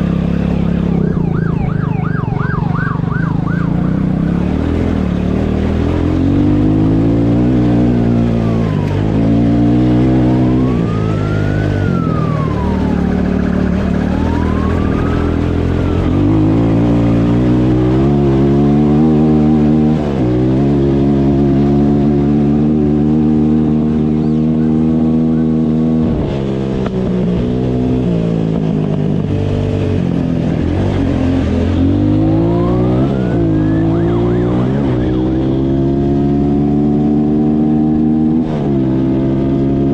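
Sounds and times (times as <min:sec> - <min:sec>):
motorcycle engine accelerating: 0:00.0 - 0:39.9
police siren wailing: 0:00.2 - 0:04.8, 0:07.7 - 0:20.2, 0:30.5 - 0:36.5.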